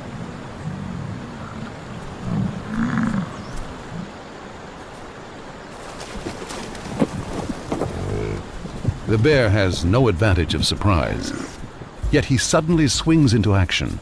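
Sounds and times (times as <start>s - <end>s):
bison grunting: 0.2s - 4.2s, 7.7s - 11.7s.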